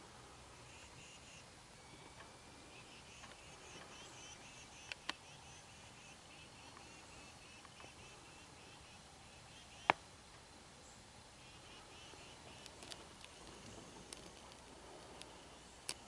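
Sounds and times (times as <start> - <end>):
faint high bird chirps: 0.3 - 10.0, 10.8 - 16.0
sharp clicks: 4.8 - 5.2, 12.3 - 16.0.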